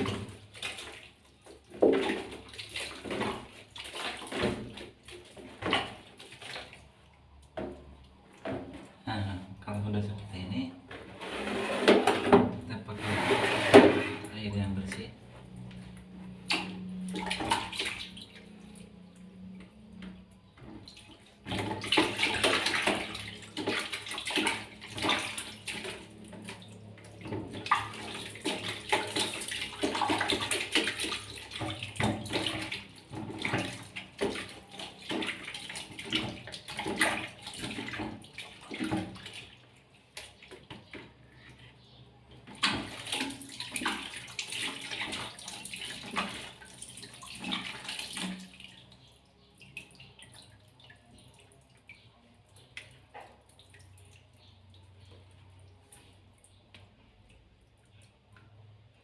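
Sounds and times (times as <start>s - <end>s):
water splashing and sloshing: 0.0s - 59.0s.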